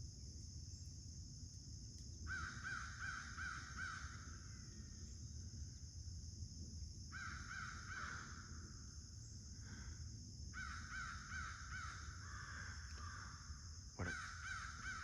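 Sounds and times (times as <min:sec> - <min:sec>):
crows cawing: 0:10.6 - 0:13.3, 0:14.0 - 0:15.0.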